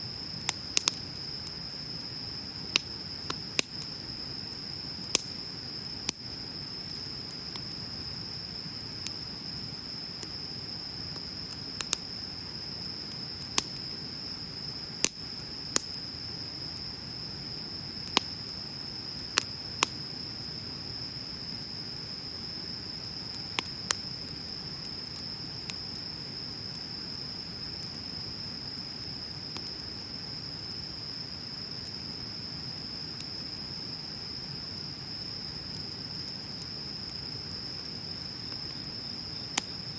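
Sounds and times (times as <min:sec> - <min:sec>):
high insect trill: 0:00.0 - 0:39.9
fire crackling pops: 0:00.1 - 0:21.4, 0:22.3 - 0:39.9.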